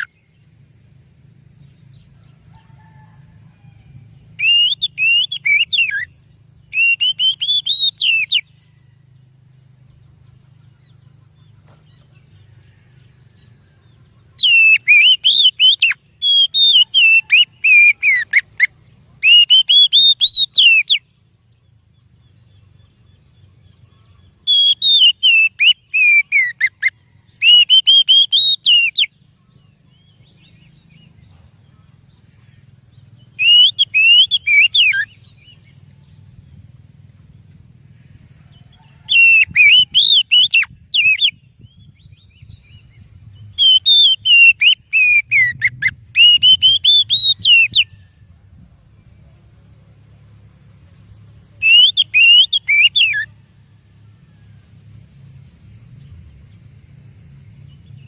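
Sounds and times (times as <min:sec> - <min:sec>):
bird singing whistled notes: 0:00.0 - 0:00.6, 0:01.6 - 0:37.4, 0:38.0 - 0:54.4
faint low hum: 0:44.8 - 0:58.0.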